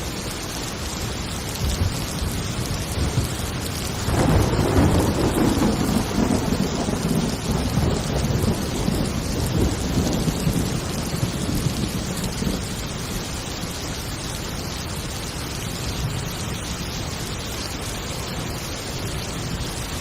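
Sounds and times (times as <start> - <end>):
heavy rain falling: 0.0 - 20.0
rolling thunder: 1.6 - 12.8.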